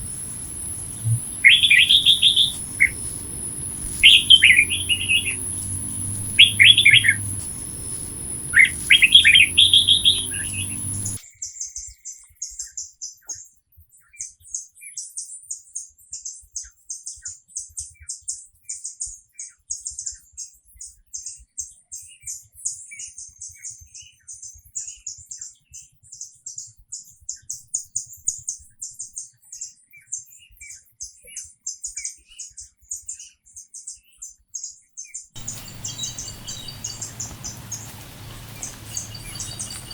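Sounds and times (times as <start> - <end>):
birds chirping: 0.0 - 11.2, 35.4 - 39.9
low hum: 0.0 - 11.2, 35.4 - 39.9.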